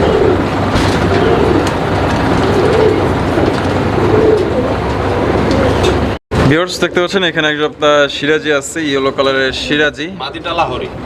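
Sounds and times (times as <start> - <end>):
pigeons cooing: 0.0 - 6.1.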